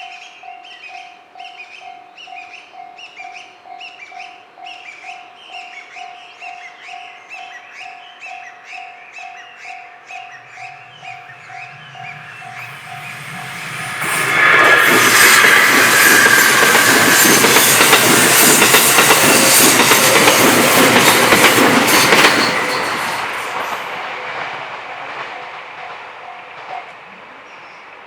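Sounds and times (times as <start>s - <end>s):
crossing alarm bell ringing: 8.4s - 24.0s
train wheels clacking: 10.1s - 27.2s.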